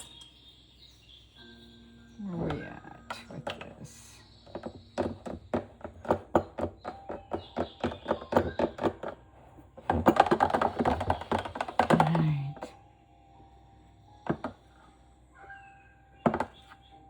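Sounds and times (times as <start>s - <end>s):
utensils clattering and scraping: 2.5s - 12.6s
kitchen utensils tapping and knocking: 3.1s - 12.7s, 14.2s - 14.6s, 16.2s - 16.7s.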